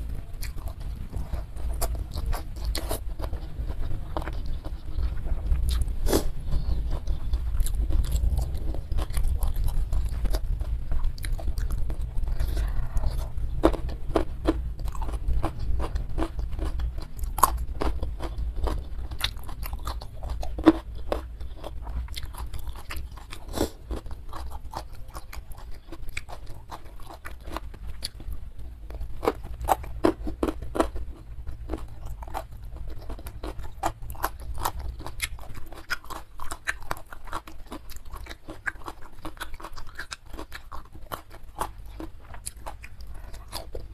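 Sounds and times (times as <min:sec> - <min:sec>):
steady low rumble: 0:00.0 - 0:43.9
person chewing and biting: 0:00.4 - 0:43.9.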